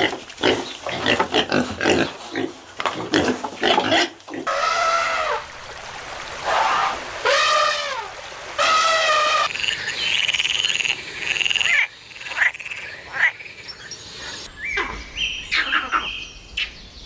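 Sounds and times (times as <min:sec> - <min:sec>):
animal drawn-out cries: 0:03.2 - 0:05.6, 0:06.4 - 0:09.6
high trilling animal call: 0:14.6 - 0:16.4.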